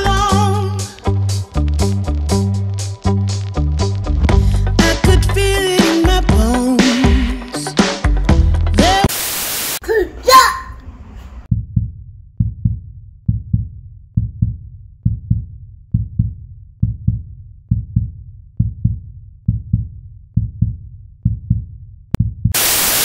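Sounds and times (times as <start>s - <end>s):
heartbeat thumps: 11.5s - 22.7s.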